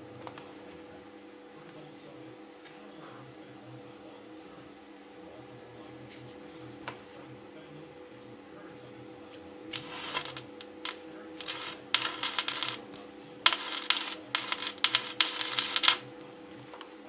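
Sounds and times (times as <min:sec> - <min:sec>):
steady background hum: 0:00.0 - 0:17.0
metal clinking and scraping: 0:09.8 - 0:16.1.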